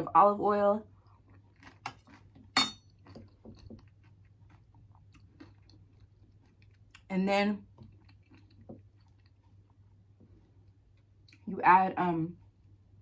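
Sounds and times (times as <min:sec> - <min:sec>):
close-up chewing: 0:00.9 - 0:07.1, 0:07.7 - 0:09.8.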